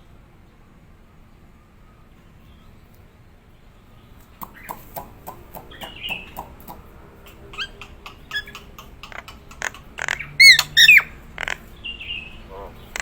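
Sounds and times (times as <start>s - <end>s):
myna calling: 4.2s - 13.0s.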